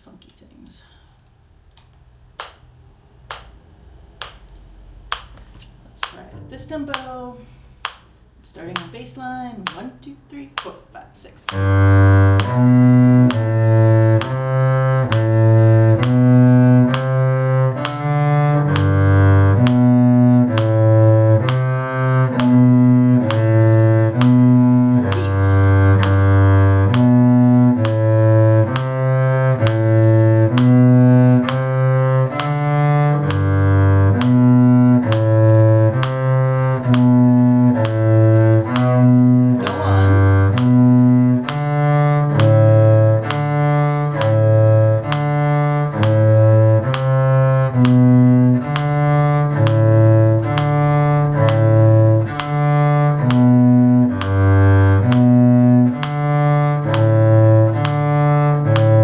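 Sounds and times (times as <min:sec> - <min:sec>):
cello bowing low notes: 0:02.4 - 0:10.7, 0:11.4 - 0:59.0.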